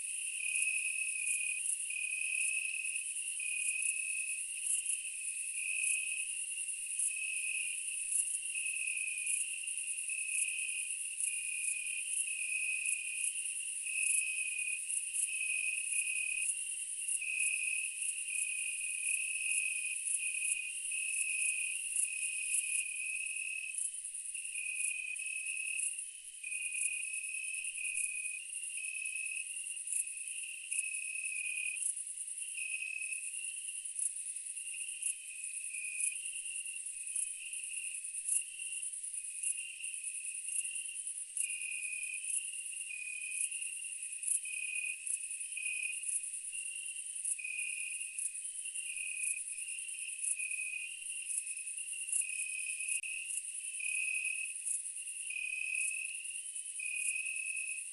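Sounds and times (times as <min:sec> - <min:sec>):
insect chirping: 0:14.0 - 0:57.9.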